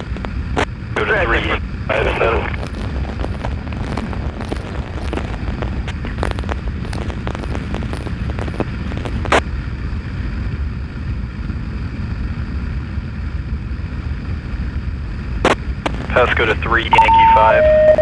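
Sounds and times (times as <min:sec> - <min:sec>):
radio static crackles: 0:00.0 - 0:09.4, 0:15.4 - 0:18.0
motorcycle rumble: 0:01.6 - 0:18.0
scanner squelch burst: 0:16.0 - 0:18.0.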